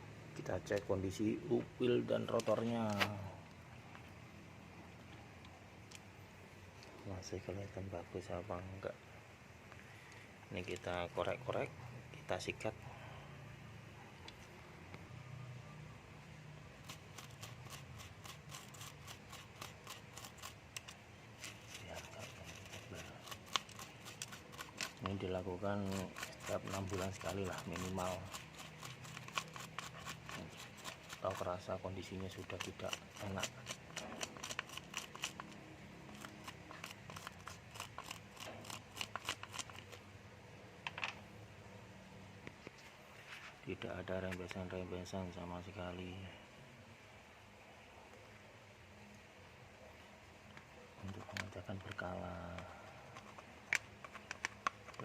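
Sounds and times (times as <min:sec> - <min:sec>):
scratchy brushing strokes: 0:16.7 - 0:40.0.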